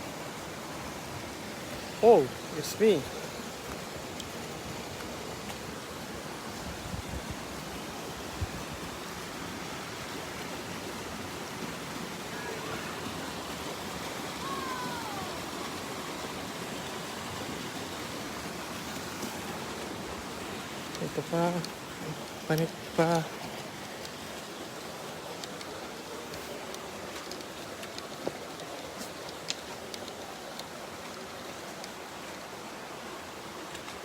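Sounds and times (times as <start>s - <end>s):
stream running over rocks: 0.0s - 34.0s.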